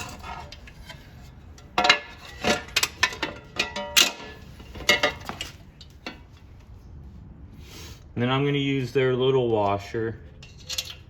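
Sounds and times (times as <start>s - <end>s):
metal hardware clinking: 1.6s - 6.3s.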